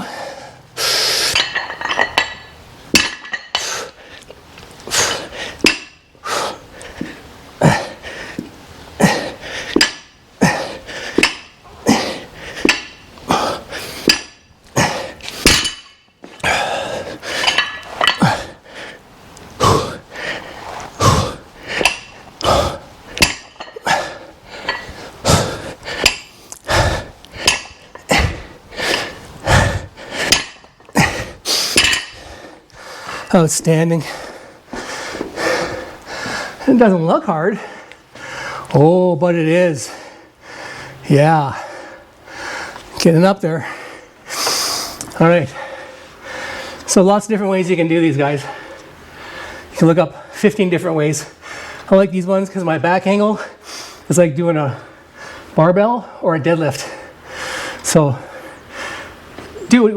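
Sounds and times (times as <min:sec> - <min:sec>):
metal dumbbell clinking: 0:01.3 - 0:03.6, 0:05.6 - 0:06.0, 0:09.7 - 0:10.2, 0:11.2 - 0:11.6, 0:12.6 - 0:13.1, 0:15.4 - 0:16.1, 0:17.4 - 0:18.3, 0:21.8 - 0:22.2, 0:23.2 - 0:23.8, 0:24.6 - 0:24.9, 0:26.0 - 0:26.3, 0:27.4 - 0:28.3, 0:30.3 - 0:30.8, 0:31.8 - 0:32.2.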